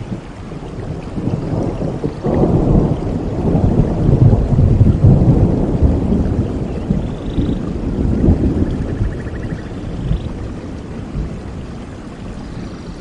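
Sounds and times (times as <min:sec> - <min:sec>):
rain: 0:00.0 - 0:13.0
thunder rumbling: 0:00.0 - 0:13.0.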